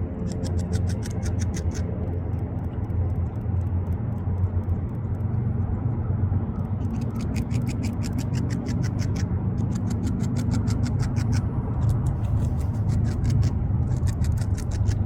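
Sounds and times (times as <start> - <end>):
steady low rumble: 0.0 - 15.0
beaver gnawing wood: 0.2 - 1.9, 6.8 - 15.0.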